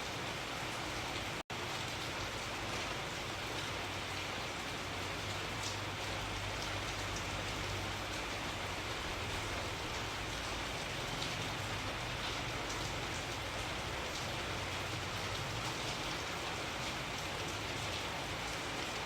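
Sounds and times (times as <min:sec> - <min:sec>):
steady rain hiss: 0:00.0 - 0:19.0
raindrop ticks: 0:05.5 - 0:08.2.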